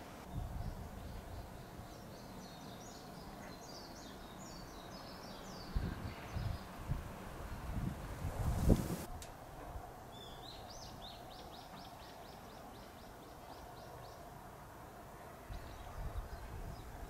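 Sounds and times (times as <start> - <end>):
outdoor background: 0.0 - 17.0
bird singing: 0.3 - 6.8, 10.1 - 14.3.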